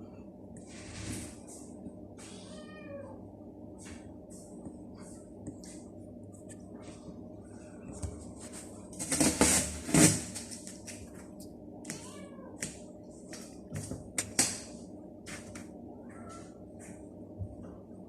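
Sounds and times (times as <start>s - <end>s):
cats meowing: 2.2s - 3.2s, 11.9s - 12.6s.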